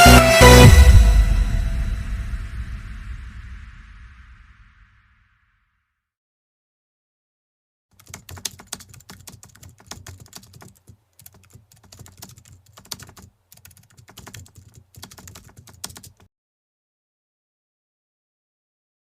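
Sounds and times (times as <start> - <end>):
computer keyboard typing: 8.0 - 16.3.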